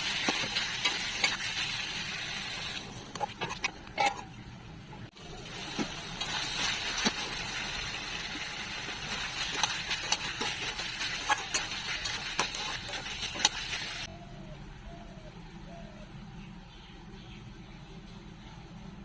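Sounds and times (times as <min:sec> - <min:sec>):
curry sizzling in a hot pan: 0:05.2 - 0:14.1.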